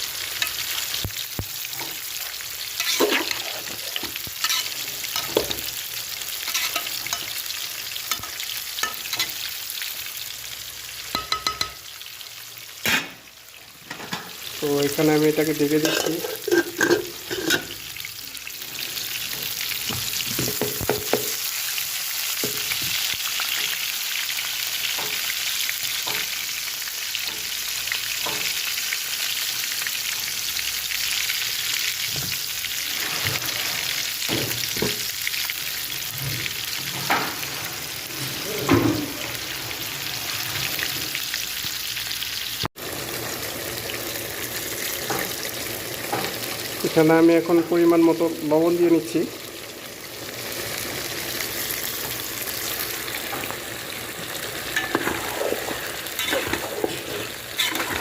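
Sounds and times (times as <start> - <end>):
fish sizzling in hot oil: 0.0 - 58.0
spatula scraping a pan: 2.8 - 5.8, 6.4 - 7.4, 32.8 - 34.2, 54.7 - 58.0.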